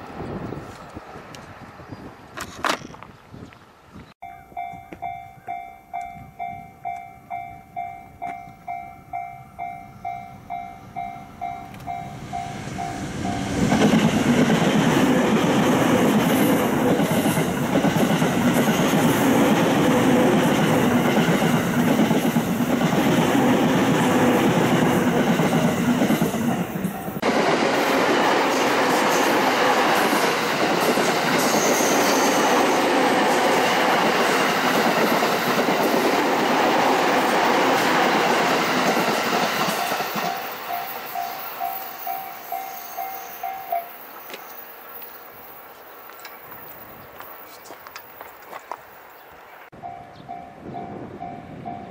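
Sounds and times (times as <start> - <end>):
train passing: 0.0 - 2.6, 3.7 - 51.9
level crossing warning bell: 4.2 - 13.9, 39.6 - 44.2, 49.8 - 51.9
train wheels clacking: 11.0 - 44.4.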